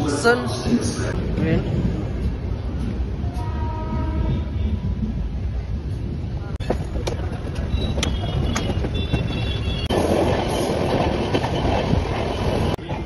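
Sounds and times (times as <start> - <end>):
train rumble: 0.0 - 13.0
rush of passing wagons: 6.3 - 13.0.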